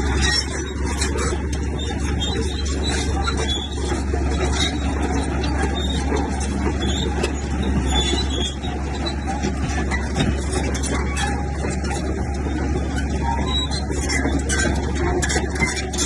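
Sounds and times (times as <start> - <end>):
diesel machinery engine rumble: 0.0 - 16.0.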